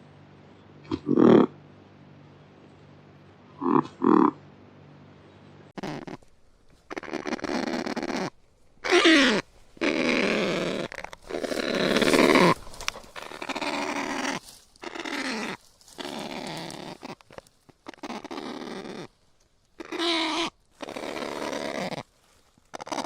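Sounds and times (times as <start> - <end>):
parrot squawking calls: 5.8 - 6.2, 6.9 - 19.1, 19.8 - 22.0, 22.7 - 23.0.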